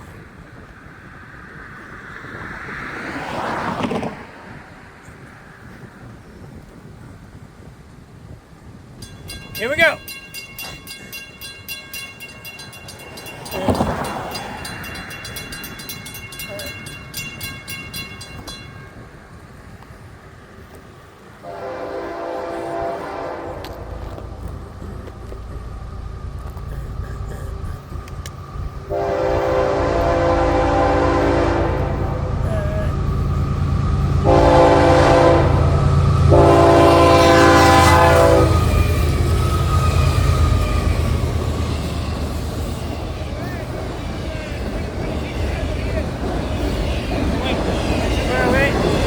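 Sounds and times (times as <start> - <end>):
locomotive engine rumbling: 0.0 - 49.0
crossing warning bell ringing: 8.9 - 20.0, 21.4 - 49.0
locomotive horn blowing: 21.4 - 24.4, 28.8 - 33.4, 34.1 - 41.1.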